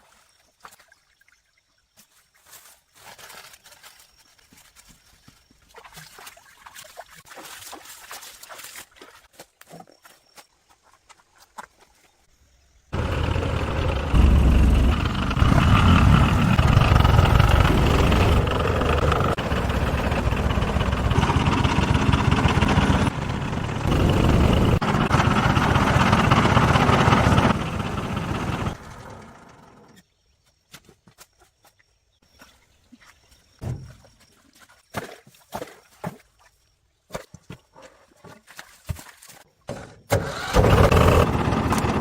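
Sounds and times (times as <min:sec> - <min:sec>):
engine running: 0:12.9 - 0:30.0, 0:40.3 - 0:42.0.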